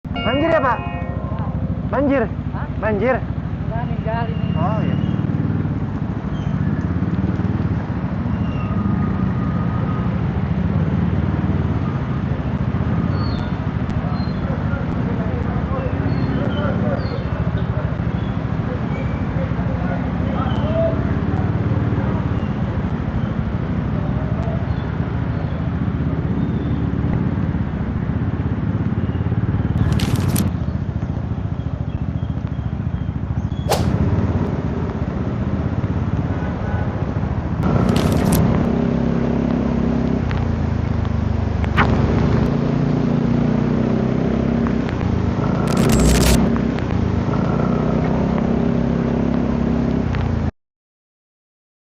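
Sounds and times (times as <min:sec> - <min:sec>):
scooter engine running: 0:00.1 - 0:13.1
sharp bursts of noise: 0:33.7 - 0:34.3, 0:45.5 - 0:46.5.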